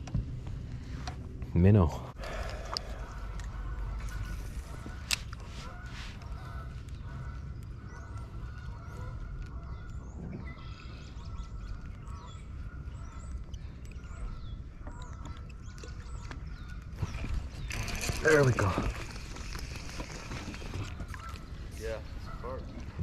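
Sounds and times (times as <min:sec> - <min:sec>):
steady low rumble: 0:00.0 - 0:17.6
birds chirping and whistling: 0:02.3 - 0:23.0.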